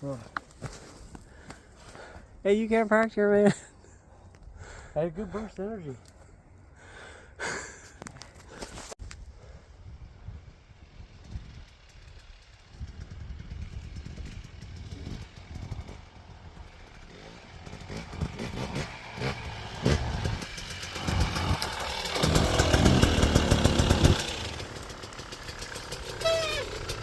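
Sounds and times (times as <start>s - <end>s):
dirt bike engine revving: 12.1s - 27.0s.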